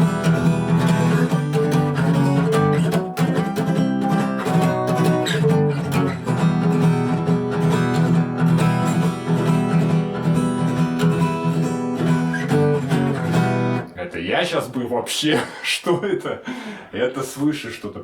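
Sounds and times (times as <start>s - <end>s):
acoustic guitar strumming: 0.0s - 13.9s.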